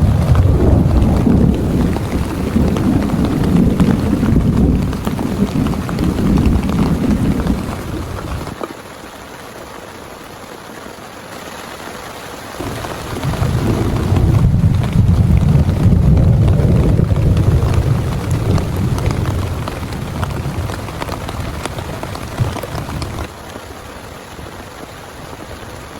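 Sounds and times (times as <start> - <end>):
thunder rumbling: 0.0 - 8.6, 12.6 - 23.4
heavy rain falling: 0.0 - 25.9.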